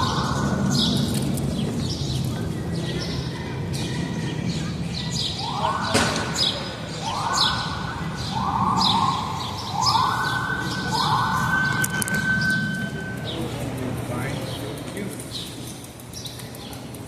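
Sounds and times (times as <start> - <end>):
siren whooping: 0.0 - 1.5, 3.6 - 14.1
low street rumble: 0.0 - 17.0
small birds chirping: 0.0 - 17.0.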